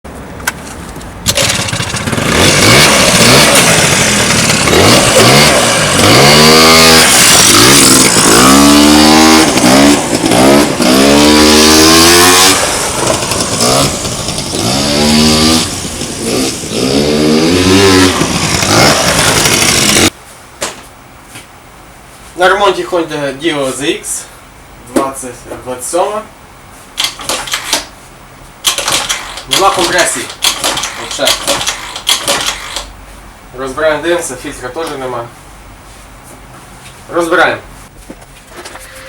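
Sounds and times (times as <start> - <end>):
scooter engine revving: 1.2 - 20.2, 28.7 - 32.9.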